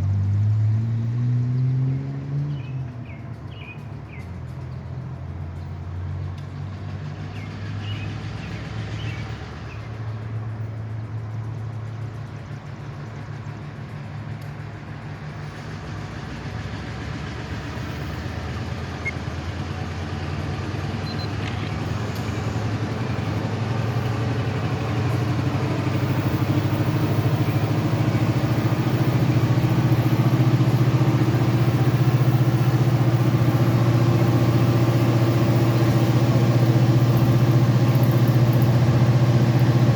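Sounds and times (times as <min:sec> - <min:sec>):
diesel locomotive engine hum: 0:00.0 - 0:39.9
faint bird chirps: 0:21.0 - 0:21.4.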